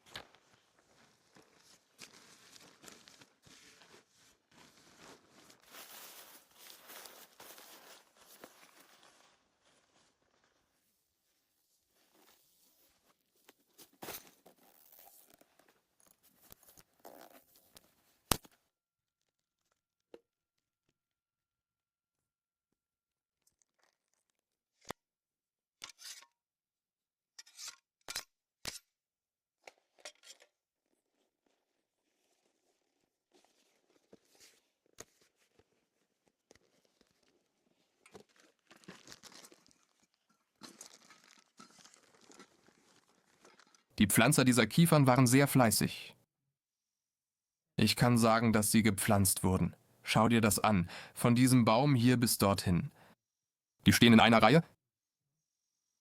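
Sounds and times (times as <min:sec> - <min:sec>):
rustling and crinkling handling: 0:00.0 - 0:18.5, 0:29.7 - 0:43.9.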